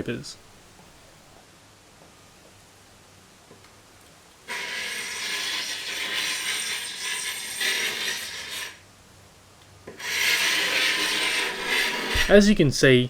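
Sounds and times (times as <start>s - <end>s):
hand scraper scraping wood: 4.5s - 8.8s, 10.0s - 12.5s.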